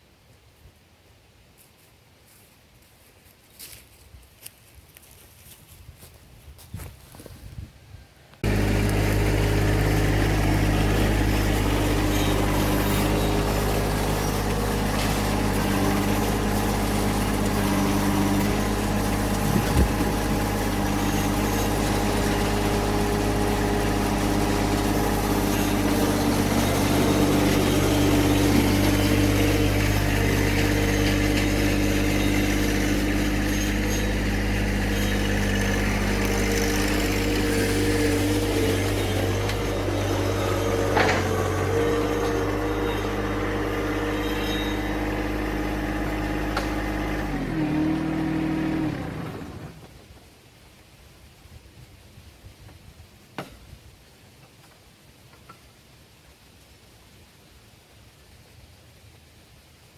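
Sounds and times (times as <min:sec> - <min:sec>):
diesel tractor engine running: 0:08.4 - 0:50.1.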